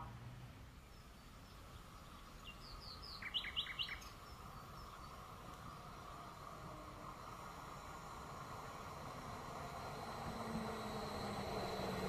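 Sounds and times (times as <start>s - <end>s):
faint outdoor background: 0.0s - 12.0s
small songbird chirping: 0.6s - 6.2s.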